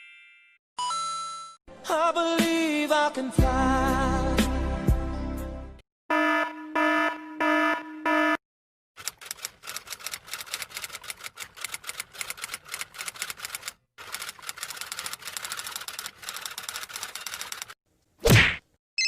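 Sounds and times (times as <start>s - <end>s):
typewriter keys clacking: 9.0s - 17.8s.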